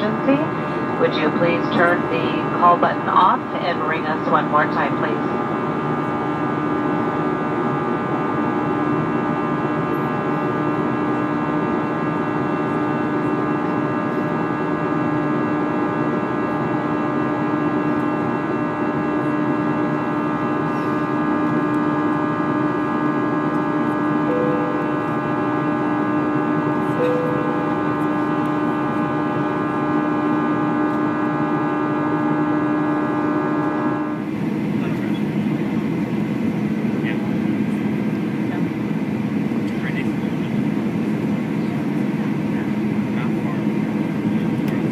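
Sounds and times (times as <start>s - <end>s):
airplane cabin engine drone: 0.0s - 44.9s
brief higher tones: 24.3s - 26.0s, 26.9s - 29.2s.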